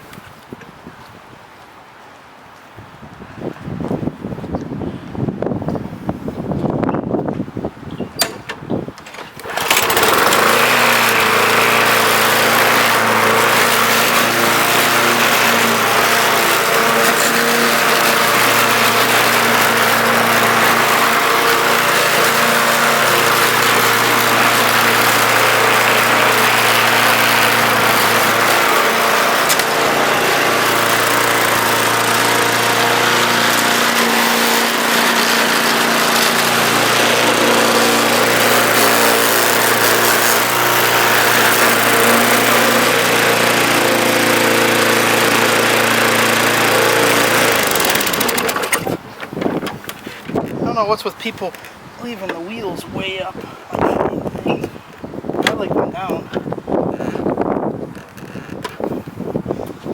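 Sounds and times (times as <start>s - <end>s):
lawn mower engine running: 9.1s - 50.6s.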